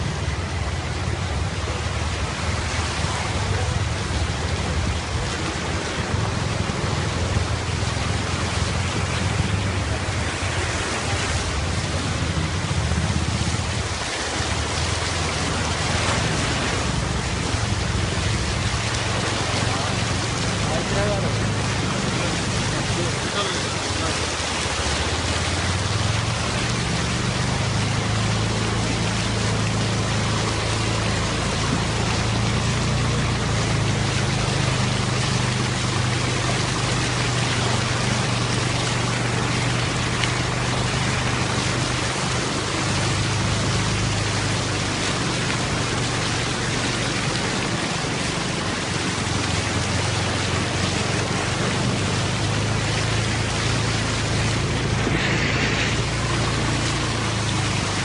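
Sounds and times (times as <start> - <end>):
heavy rain hissing: 0.0 - 58.0
low rumble: 0.0 - 58.0.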